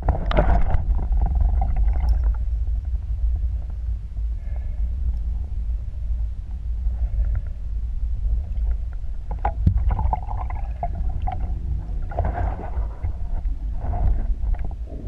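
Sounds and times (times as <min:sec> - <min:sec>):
water bubbling: 0:00.0 - 0:02.6, 0:09.3 - 0:13.4
low underwater rumble: 0:00.0 - 0:15.0.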